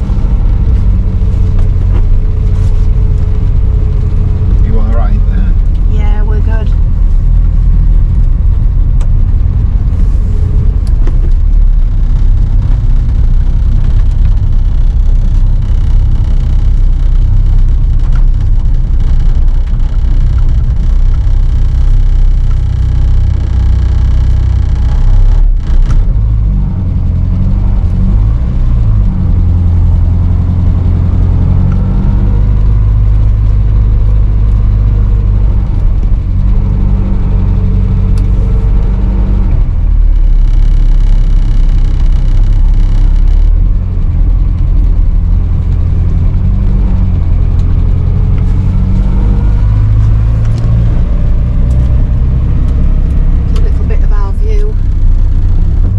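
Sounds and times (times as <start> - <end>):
car road and engine rumble: 0.0 - 55.9.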